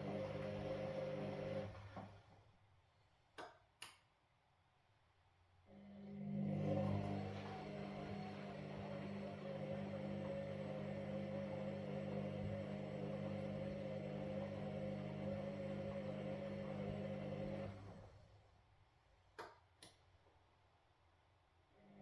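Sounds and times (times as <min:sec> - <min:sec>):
washing machine motor humming: 0:00.0 - 0:02.3, 0:06.2 - 0:18.4.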